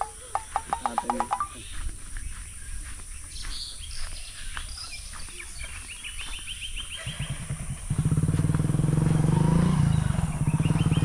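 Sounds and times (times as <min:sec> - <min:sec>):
bird trill: 0:00.0 - 0:07.9
small birds chirping: 0:00.0 - 0:11.0.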